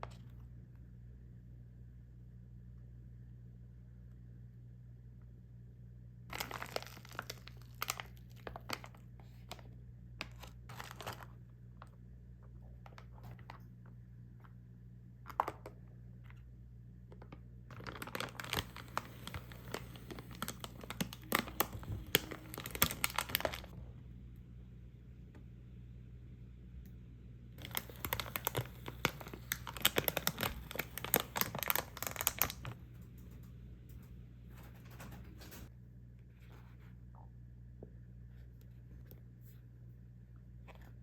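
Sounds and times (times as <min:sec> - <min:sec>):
plastic packaging crinkling and tearing: 0:06.3 - 0:09.6, 0:10.2 - 0:11.4, 0:17.7 - 0:23.7, 0:27.6 - 0:32.8.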